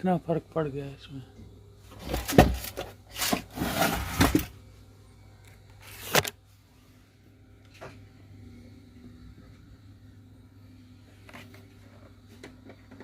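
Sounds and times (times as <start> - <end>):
faint low hum: 0.0 - 13.0
scraping and rustling: 1.9 - 4.6.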